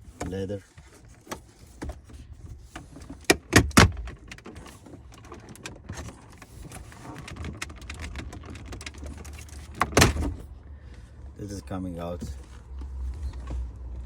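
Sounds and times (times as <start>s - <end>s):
plastic clicking and rattling: 2.8s - 10.3s.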